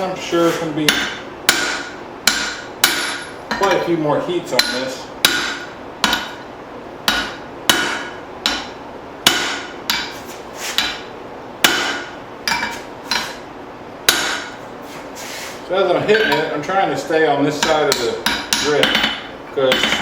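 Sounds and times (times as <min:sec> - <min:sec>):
hammer striking hot steel: 0:00.8 - 0:03.8, 0:04.5 - 0:06.4, 0:07.1 - 0:13.4, 0:14.1 - 0:14.6, 0:17.6 - 0:20.0.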